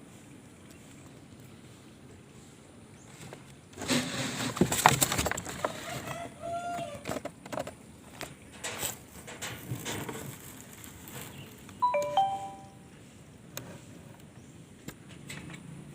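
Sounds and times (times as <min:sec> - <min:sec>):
two-note chime: 0:11.8 - 0:12.8.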